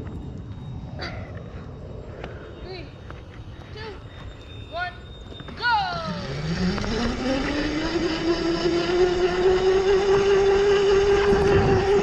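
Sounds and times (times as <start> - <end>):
electric motor whining: 5.9 - 12.0.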